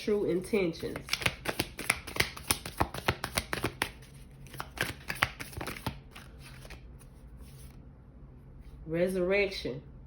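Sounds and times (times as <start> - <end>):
cards being shuffled: 0.8 - 7.8.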